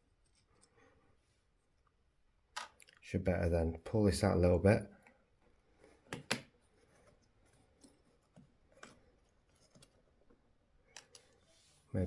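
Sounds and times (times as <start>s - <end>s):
small plastic parts clicking: 10.9s - 11.4s.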